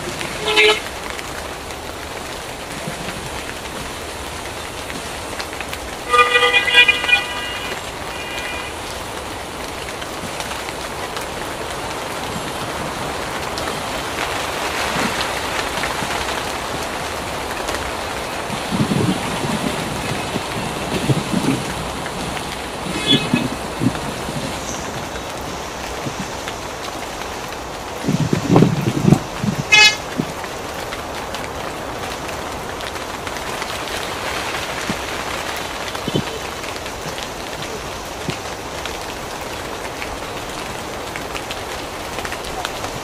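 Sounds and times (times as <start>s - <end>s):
heavy rain pouring: 0.0s - 43.0s
vehicle horn tooting: 0.2s - 1.0s, 6.0s - 9.2s, 22.8s - 25.2s, 29.7s - 30.2s.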